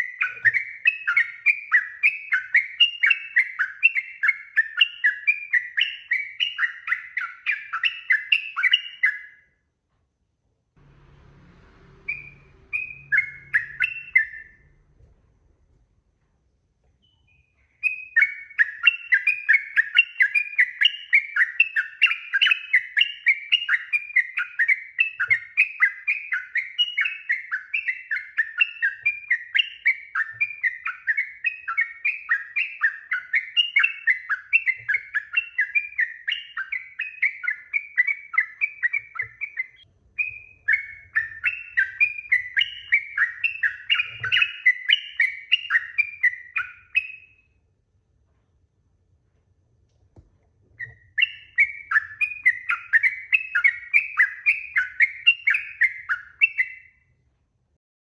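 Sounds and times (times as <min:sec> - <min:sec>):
bulbul singing whistled notes: 0:00.0 - 0:09.5, 0:10.9 - 0:14.8, 0:17.0 - 0:47.5, 0:50.8 - 0:57.0.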